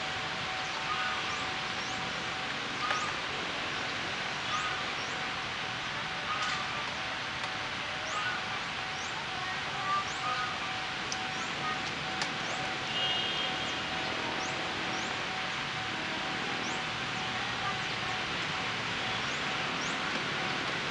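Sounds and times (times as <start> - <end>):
small birds chirping: 19.1 - 20.6.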